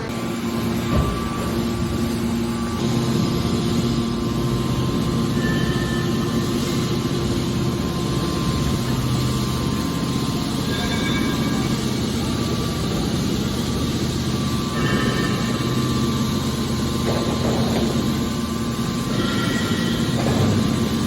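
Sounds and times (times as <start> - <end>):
hydraulic power unit humming: 0.0 - 21.0.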